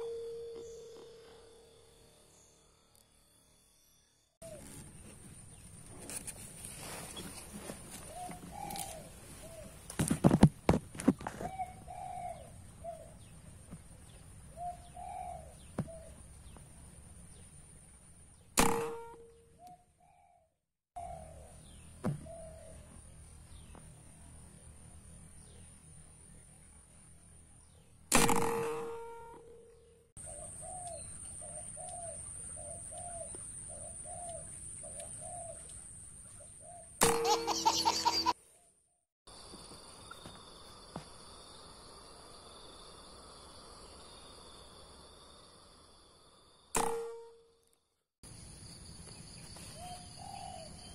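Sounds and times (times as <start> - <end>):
doves cooing: 7.6 - 10.0, 11.2 - 13.2, 14.5 - 16.2, 49.8 - 50.9.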